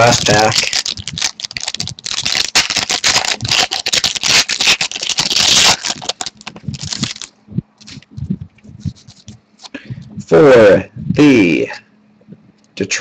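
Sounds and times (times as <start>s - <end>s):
foil wrapper crinkling: 0.0s - 8.1s, 8.9s - 9.8s.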